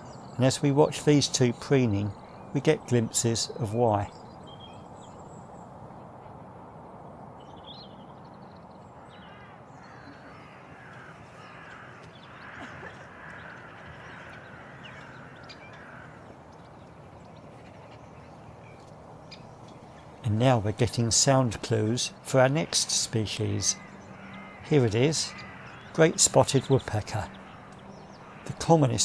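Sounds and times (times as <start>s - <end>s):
birds giving harsh calls: 0.0s - 5.6s, 18.9s - 29.0s
steady background hum: 0.0s - 5.9s, 18.8s - 29.0s.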